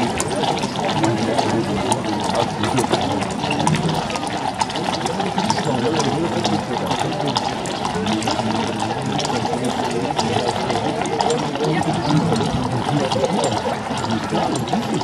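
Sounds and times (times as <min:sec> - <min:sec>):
crowd babble: 0:00.0 - 0:15.0.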